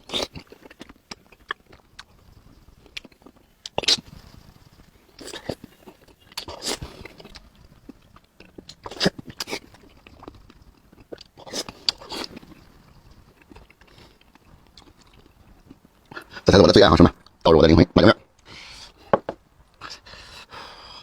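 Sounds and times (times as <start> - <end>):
person biting crunchy food: 0.0 - 2.1, 2.8 - 4.3, 5.2 - 15.4
person chewing: 0.0 - 16.5.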